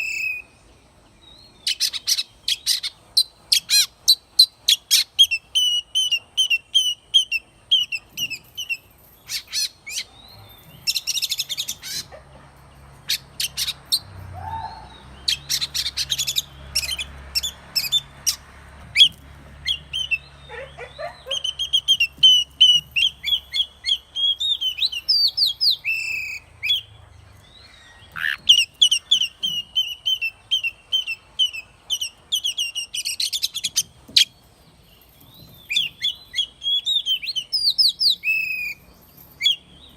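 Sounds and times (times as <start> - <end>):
bird singing whistled notes: 0.0 - 0.6, 1.3 - 12.1, 19.0 - 34.3, 34.9 - 39.9.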